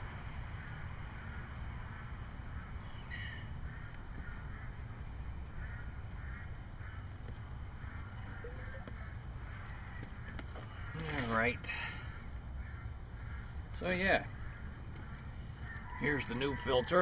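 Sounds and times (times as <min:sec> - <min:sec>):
bird call: 0:07.9 - 0:11.4.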